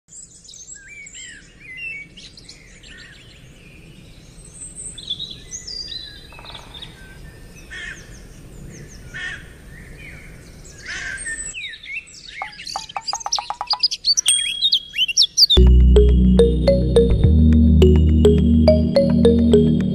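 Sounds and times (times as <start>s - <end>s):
birds chirping: 12.2s - 15.6s.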